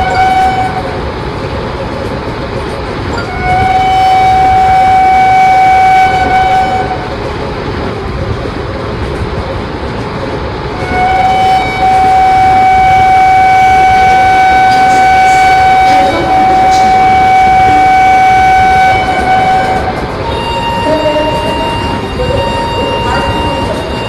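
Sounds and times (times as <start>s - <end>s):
train horn blasts: 0.0s - 1.0s, 3.2s - 7.2s, 10.8s - 24.0s
passing train rumble: 0.0s - 24.0s.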